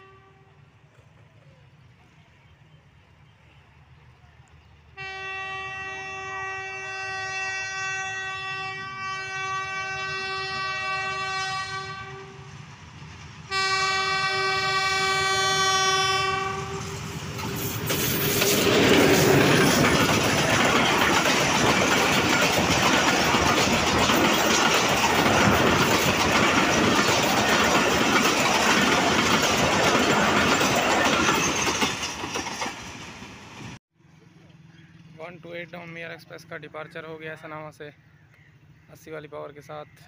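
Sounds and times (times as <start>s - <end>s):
locomotive horn blasts: 0.0s - 0.6s, 5.0s - 12.6s, 13.5s - 17.0s
train passing with loud rush: 0.0s - 33.8s
wheels clattering over rails: 17.1s - 33.4s.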